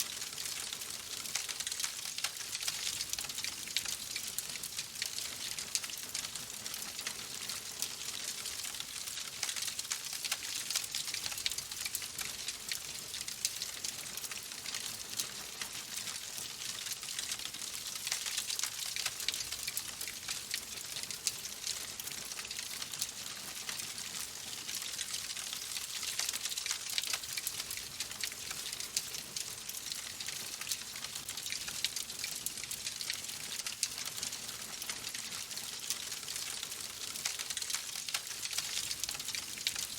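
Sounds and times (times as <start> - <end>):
fire crackling and popping: 23.6 - 32.4, 35.5 - 39.9.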